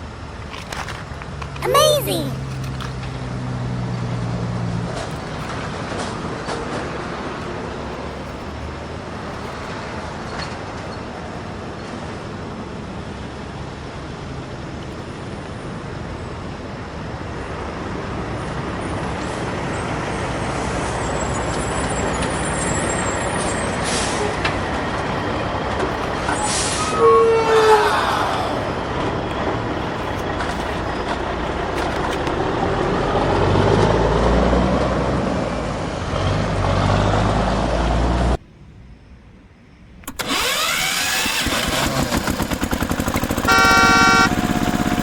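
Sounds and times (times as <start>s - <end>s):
truck engine running: 21.6s - 26.6s, 28.6s - 38.3s, 40.0s - 45.0s.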